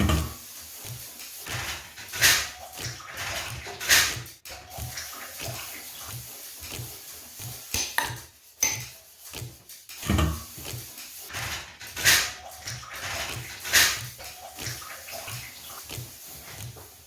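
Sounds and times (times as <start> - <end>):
dishes clinking and clattering: 7.8 - 9.0.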